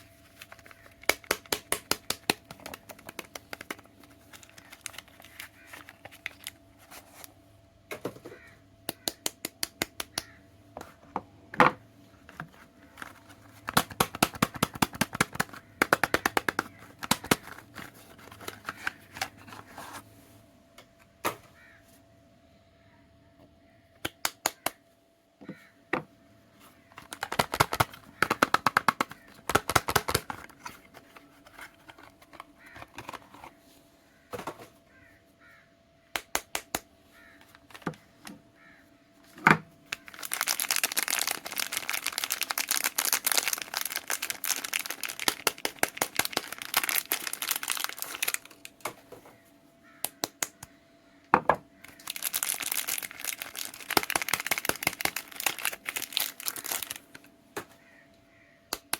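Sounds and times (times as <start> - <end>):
wrapper crinkling: 0.0 - 7.3, 13.0 - 20.0, 27.0 - 33.5, 39.9 - 48.9, 51.9 - 57.3.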